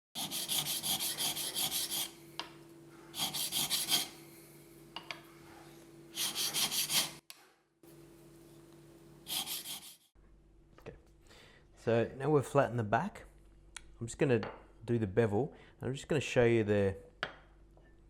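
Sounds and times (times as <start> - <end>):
blade stroking on sharpening stone: 0.2 - 2.2, 3.2 - 4.2, 6.2 - 7.2, 9.3 - 10.0.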